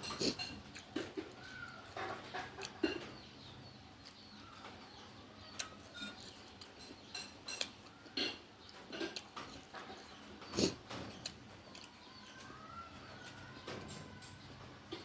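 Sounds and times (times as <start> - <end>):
spoon and chopsticks clinking on bowl: 5.9 - 8.4.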